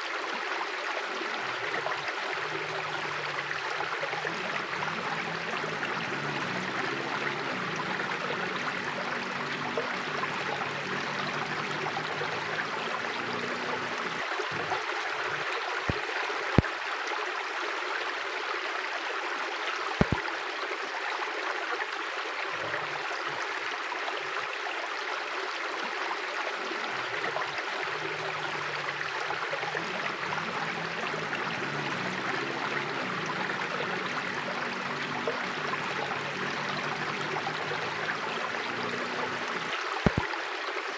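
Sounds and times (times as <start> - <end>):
river rushing: 1.1 - 16.3, 26.6 - 40.3
sharp clicks: 20.0 - 20.2, 39.6 - 40.2.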